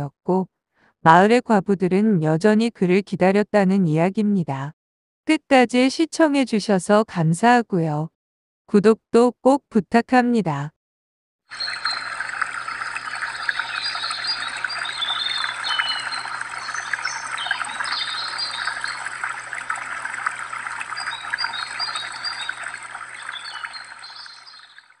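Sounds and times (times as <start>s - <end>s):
small birds chirping: 11.5s - 25.0s
stream trickling: 11.5s - 25.0s.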